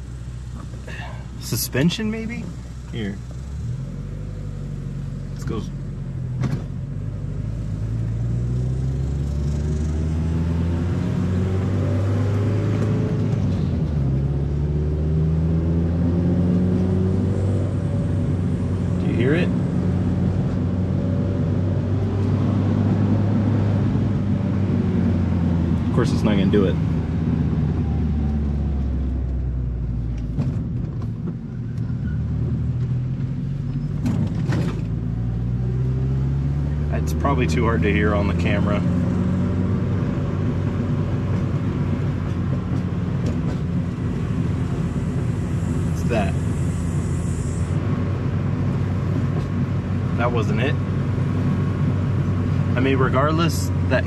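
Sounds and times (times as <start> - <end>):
car engine accelerating: 0.0 - 54.0
road noise: 0.0 - 54.0.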